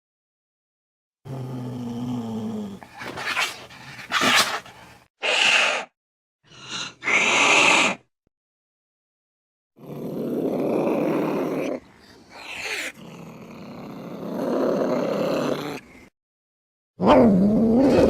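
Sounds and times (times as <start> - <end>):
cat hissing and spitting: 2.8 - 5.9, 6.5 - 8.0
cat growling: 9.8 - 16.0.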